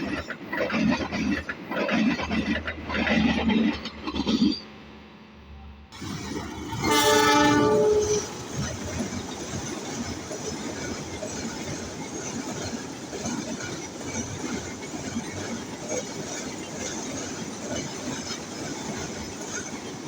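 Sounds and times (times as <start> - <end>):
train rumbling and rattling: 0.0 - 20.0
locomotive horn: 6.7 - 8.7.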